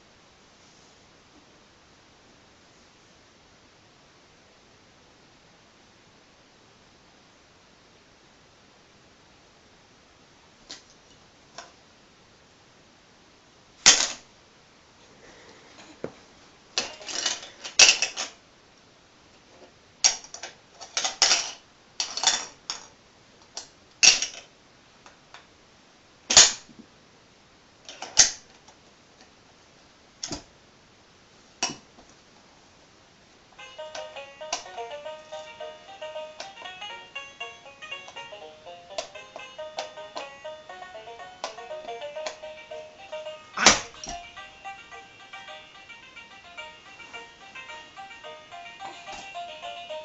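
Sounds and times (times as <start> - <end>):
plastic toy pieces clacking: 24.0 - 24.5.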